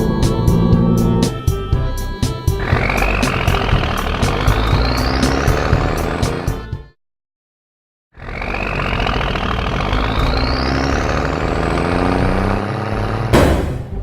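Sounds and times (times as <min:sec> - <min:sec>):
short loud burst: 0:13.4 - 0:14.0.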